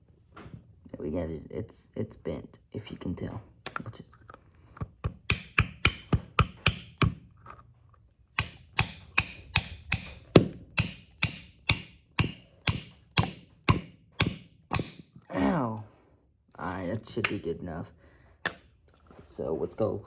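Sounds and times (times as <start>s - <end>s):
hammer on sheet metal: 10.8s - 15.0s.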